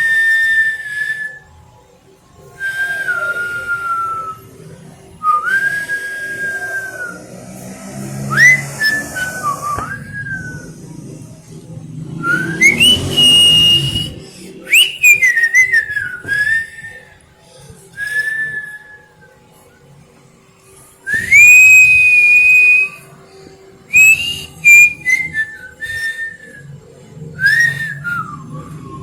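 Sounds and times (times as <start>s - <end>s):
person whistling: 8.3s - 10.8s, 12.2s - 17.0s, 21.1s - 23.0s, 23.9s - 26.6s, 27.4s - 29.0s.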